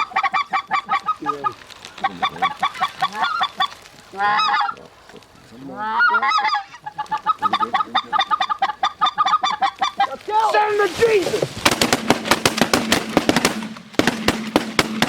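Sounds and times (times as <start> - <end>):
goose honking and clucking: 0.0 - 10.7.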